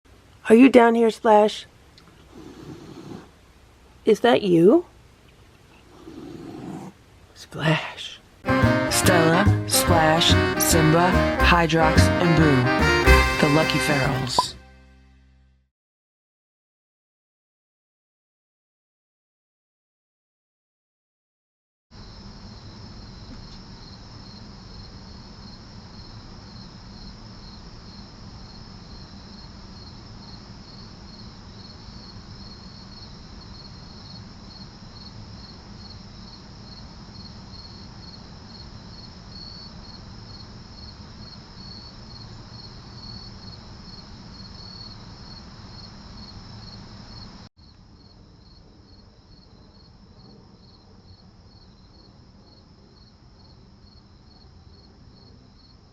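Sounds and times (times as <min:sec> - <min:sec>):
crickets chirping: 0:22.0 - 0:55.9.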